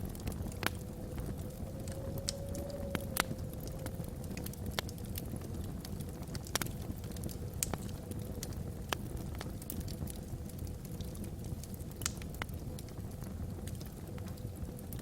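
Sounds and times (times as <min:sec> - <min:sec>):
wind whistling across chimney: 0:00.0 - 0:11.8
log fire crackling and popping: 0:00.0 - 0:15.0.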